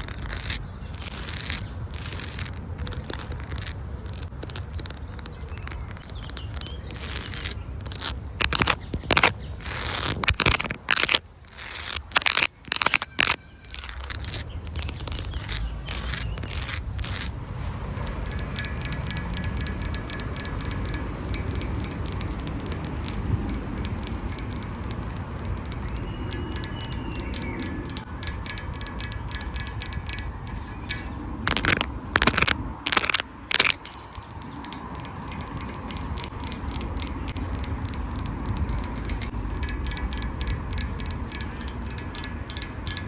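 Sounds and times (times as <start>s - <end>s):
dry leaves and twigs crunching: 0.0s - 19.4s
low outdoor rumble: 0.0s - 43.0s.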